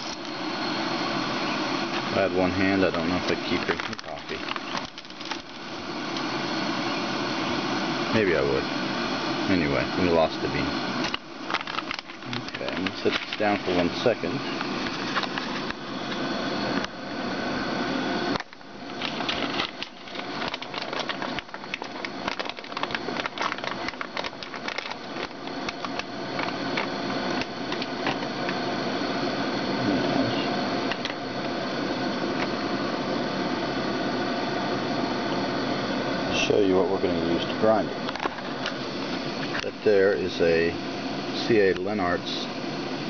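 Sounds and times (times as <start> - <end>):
kettle boiling: 0.0 - 43.0
handling clicks and rattles: 2.9 - 5.6, 11.0 - 13.8, 18.4 - 28.6.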